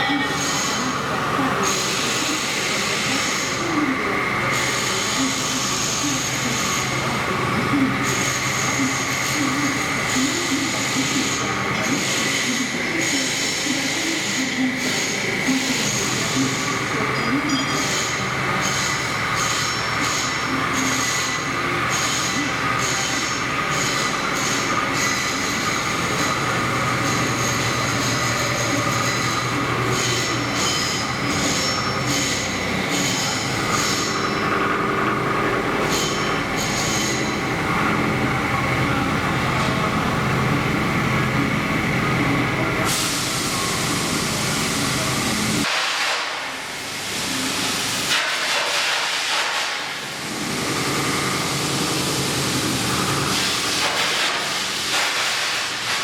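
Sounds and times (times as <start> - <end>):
milling machine whine: 0.0 - 45.7
high-pitched cutter ringing: 7.9 - 38.2.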